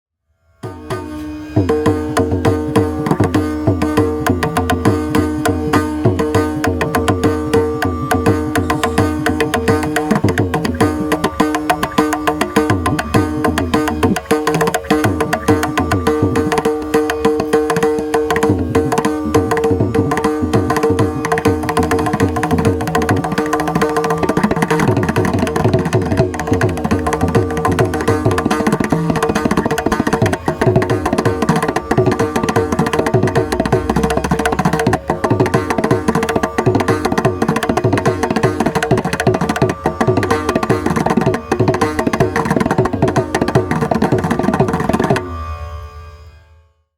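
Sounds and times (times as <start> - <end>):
steady held tone: 0.7 - 46.4
drum played in fast strokes: 0.9 - 45.2.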